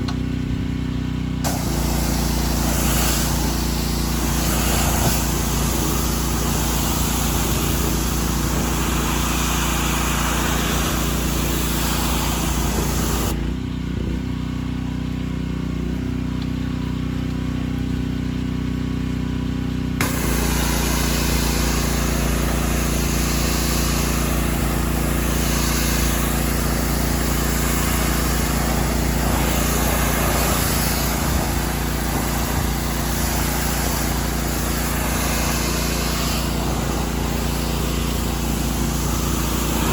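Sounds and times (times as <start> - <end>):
pressure washer engine running: 0.0 - 39.9
water spraying hard: 1.4 - 13.4, 20.0 - 39.9.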